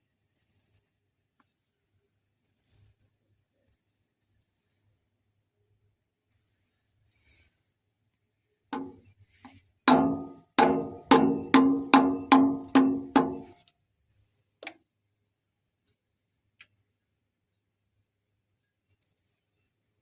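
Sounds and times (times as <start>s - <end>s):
metal being struck: 9.9s - 13.5s.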